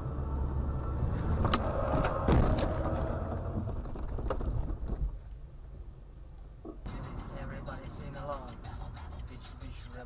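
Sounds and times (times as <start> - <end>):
vehicle rumble: 0.0 - 10.0
heavy thump: 1.9 - 3.0.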